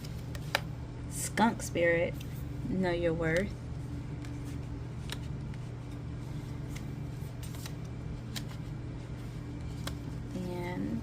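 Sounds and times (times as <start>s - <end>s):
steady low hum: 0.0s - 11.0s
cards clicking and snapping: 6.6s - 8.6s, 9.6s - 10.0s.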